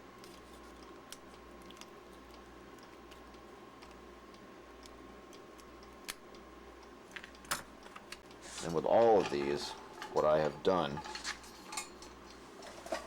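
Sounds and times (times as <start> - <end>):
steady low hum: 0.0 - 13.0
battery cells clicking: 0.7 - 8.4.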